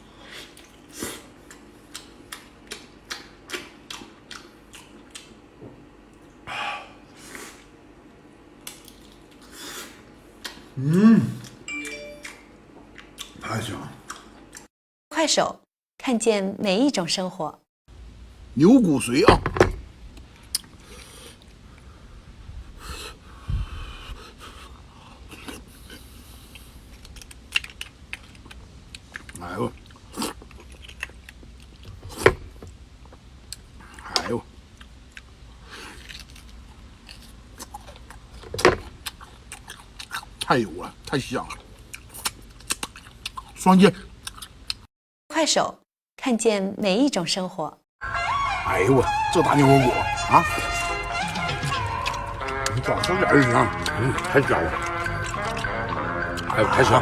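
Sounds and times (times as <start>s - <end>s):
close chewing of meat: 0.3s - 5.4s, 23.7s - 32.8s, 34.7s - 44.9s, 50.0s - 57.0s
person breathing: 6.5s - 7.6s, 20.8s - 26.8s.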